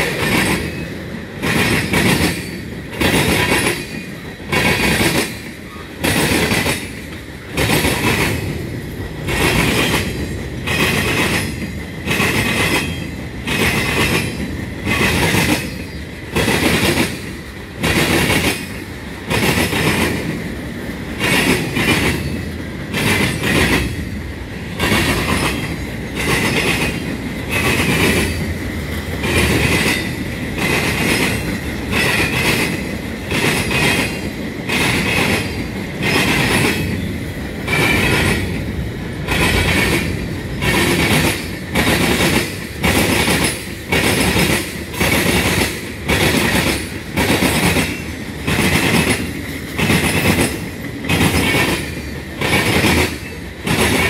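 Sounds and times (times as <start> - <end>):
freight cars rolling on rails: 0.0 - 54.0.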